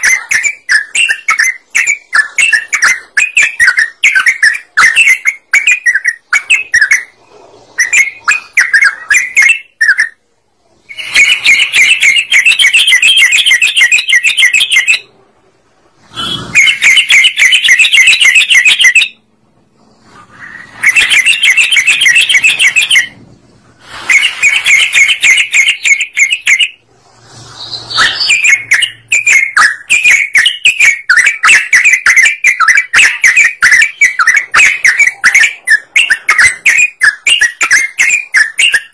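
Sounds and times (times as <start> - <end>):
bulbul singing: 10.9 - 15.1, 20.4 - 23.2, 27.6 - 38.9.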